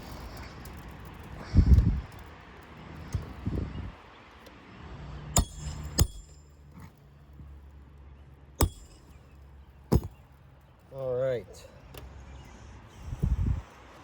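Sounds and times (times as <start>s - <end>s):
hammer striking metal tool: 5.4s - 6.5s, 8.6s - 9.2s.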